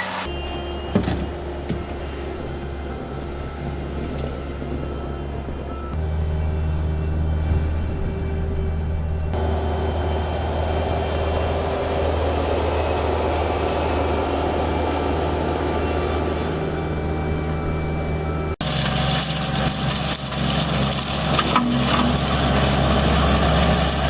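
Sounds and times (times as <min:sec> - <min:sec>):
heavy machine engine running: 0:01.3 - 0:24.0
loud rushing noise: 0:18.6 - 0:24.0.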